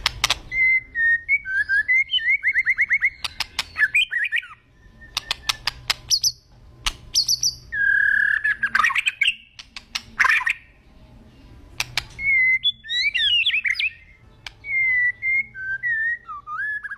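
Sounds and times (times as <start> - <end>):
bird sharp clicks: 0.0 - 0.5, 3.1 - 4.0, 5.1 - 7.6, 9.2 - 10.6, 11.8 - 12.4, 14.4 - 14.7
songbird whistling and warbling: 0.0 - 10.8, 11.8 - 16.9.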